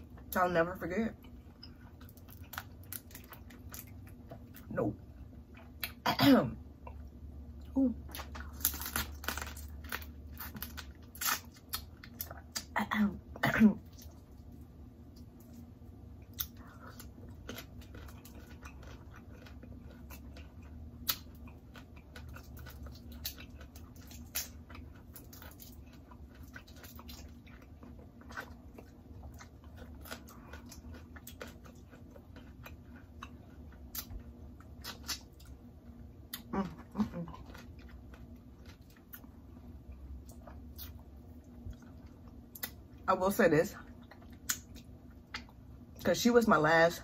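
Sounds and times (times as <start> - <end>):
chewing food: 0.0 - 6.0, 13.8 - 43.1, 43.8 - 46.1.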